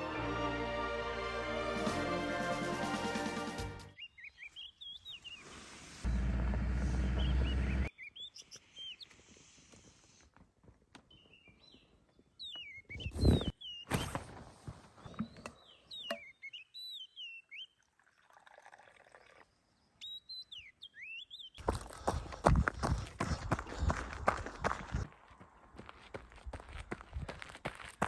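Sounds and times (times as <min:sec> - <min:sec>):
small bird chirping: 0:11.1 - 0:14.2.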